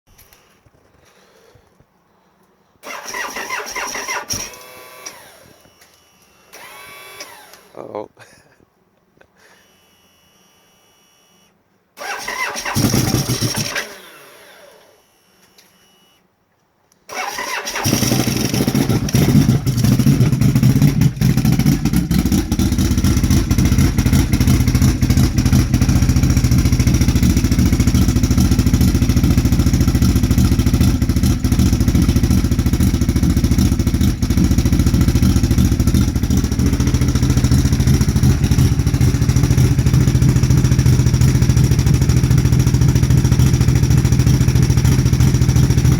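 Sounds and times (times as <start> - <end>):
engine cold starting and idling: 2.8 - 5.8, 6.4 - 7.8, 12.0 - 15.2, 17.1 - 45.9.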